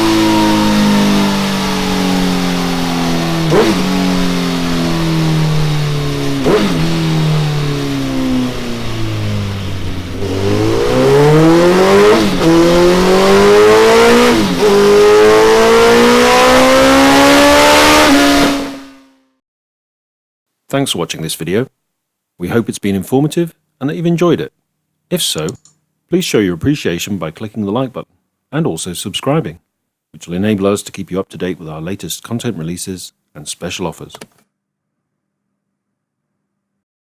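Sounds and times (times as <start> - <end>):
motorcycle engine revving: 0.0 - 19.1.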